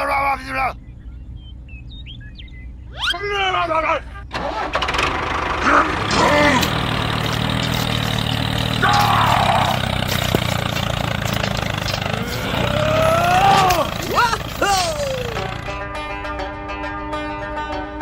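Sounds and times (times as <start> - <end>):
rising whooping calls: 2.8 - 3.6, 8.6 - 10.8, 11.4 - 15.7
small tractor engine running: 4.4 - 16.0.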